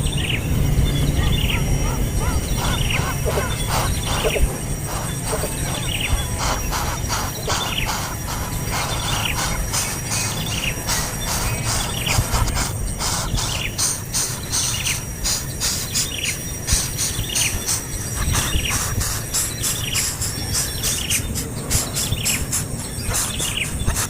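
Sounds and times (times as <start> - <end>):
low rumble: 0.0 - 13.8
bird chirping: 0.0 - 24.0
steady high whine: 0.0 - 24.0.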